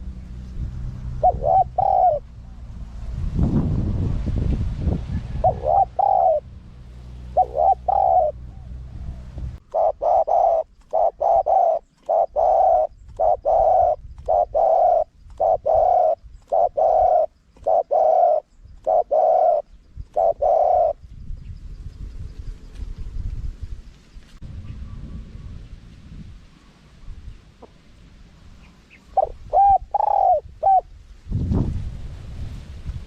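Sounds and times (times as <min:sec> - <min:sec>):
low hum: 0:00.0 - 0:10.9, 0:21.6 - 0:29.5
dove cooing: 0:01.1 - 0:02.6, 0:05.3 - 0:06.5, 0:07.2 - 0:21.0, 0:28.6 - 0:30.9.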